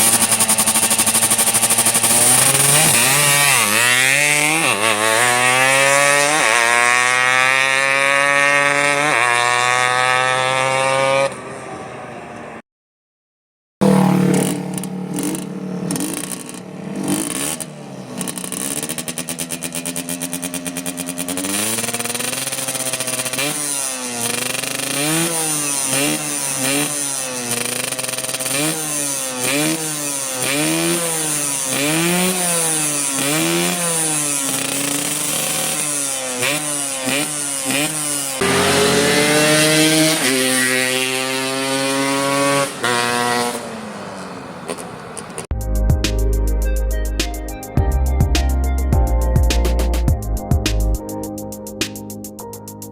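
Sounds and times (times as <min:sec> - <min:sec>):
motorcycle engine idling: 0:00.0 - 0:03.8, 0:13.8 - 0:30.4
motorcycle engine revving: 0:00.0 - 0:11.5, 0:13.8 - 0:46.5.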